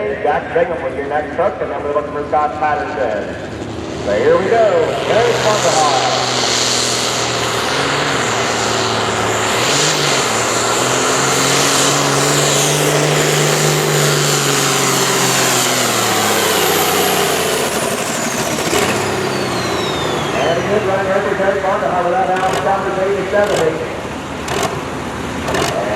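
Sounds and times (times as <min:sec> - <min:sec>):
truck engine at high revs: 0:00.0 - 0:25.9
high whine sliding down: 0:04.2 - 0:23.4.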